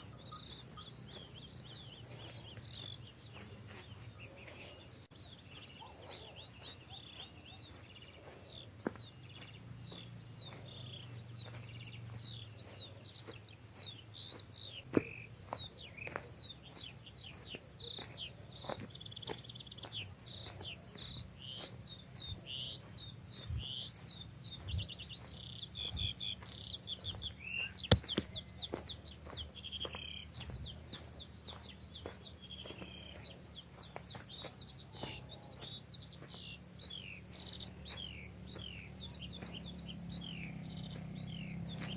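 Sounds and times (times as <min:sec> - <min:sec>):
songbirds chirping and trilling: 0:00.0 - 0:41.9
sharp clicks: 0:27.9 - 0:28.4.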